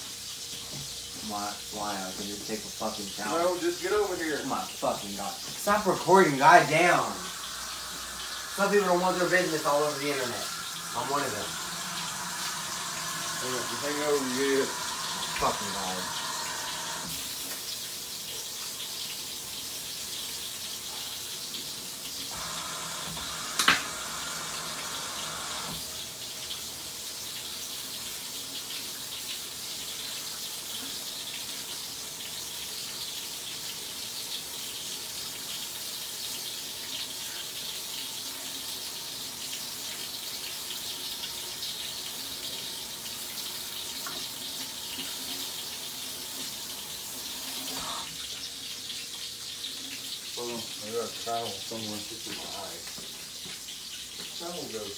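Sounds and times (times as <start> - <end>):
tap running into sink: 5.4 - 17.7, 22.4 - 26.0.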